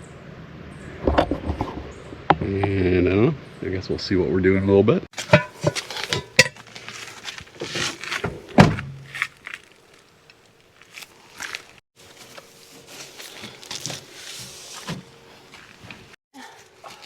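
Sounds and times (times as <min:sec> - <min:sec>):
handling and shuffling sounds: 0:05.2 - 0:17.0
heavy thump: 0:08.2 - 0:09.1.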